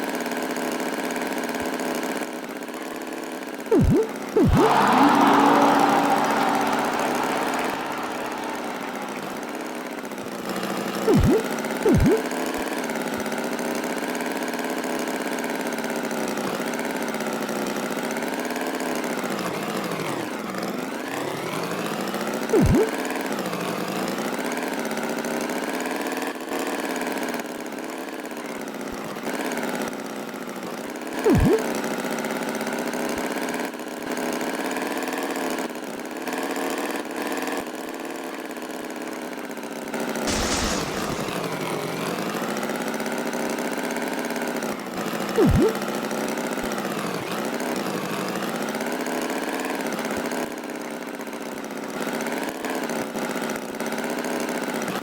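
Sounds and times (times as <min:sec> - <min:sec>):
brief loud sound: 0:03.7 - 0:09.8, 0:40.3 - 0:41.8
short hiss: 0:40.3 - 0:41.6
tractor engine running: 0:40.3 - 0:41.6.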